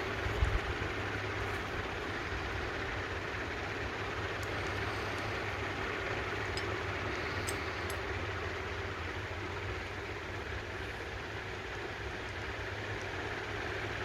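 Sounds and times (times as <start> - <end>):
steady low hum: 0.0 - 14.0
faint light clicks: 6.5 - 8.1.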